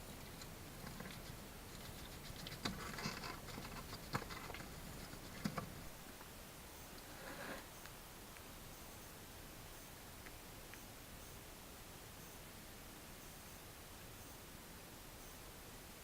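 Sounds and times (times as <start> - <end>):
small animal scuffling: 0.0 - 6.0.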